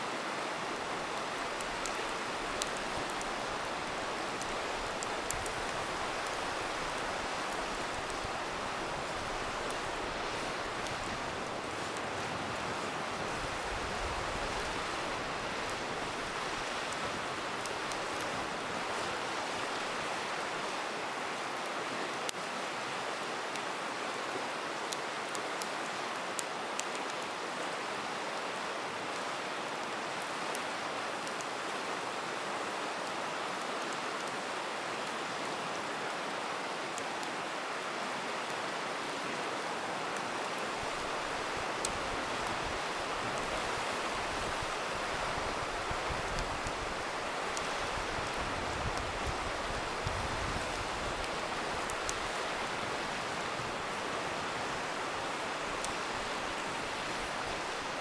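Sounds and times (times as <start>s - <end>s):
river water rushing: 0.0s - 58.0s
campfire pops and crackles: 0.3s - 20.2s, 40.4s - 54.6s.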